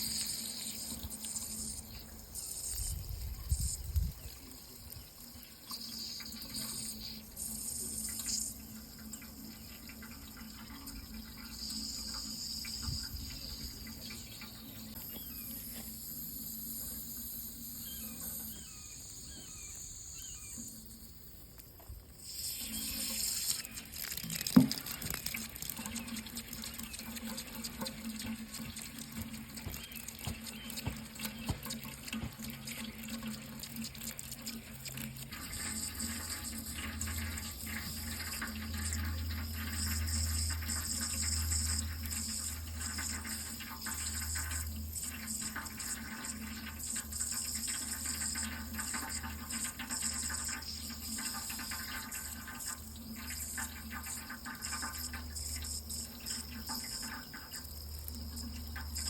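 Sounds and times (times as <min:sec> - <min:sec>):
water running from tap into sink: 0:00.0 - 0:20.8, 0:22.2 - 0:59.0.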